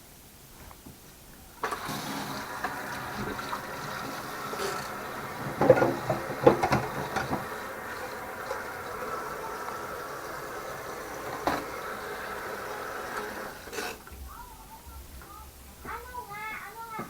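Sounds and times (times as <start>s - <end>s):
electric blender running: 1.6s - 14.1s.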